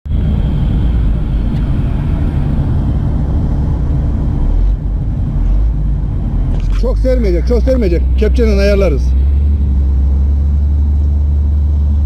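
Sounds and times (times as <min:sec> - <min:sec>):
diesel engine low rumble: 0:00.0 - 0:12.0.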